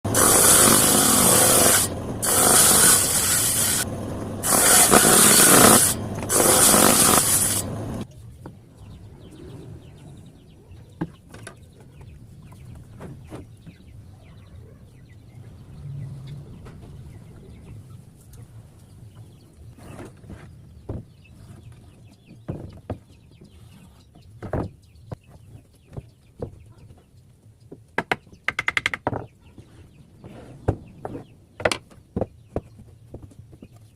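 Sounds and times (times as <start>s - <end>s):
power tool running: 0.1s - 8.0s
knocks and taps on wood: 28.0s - 29.3s.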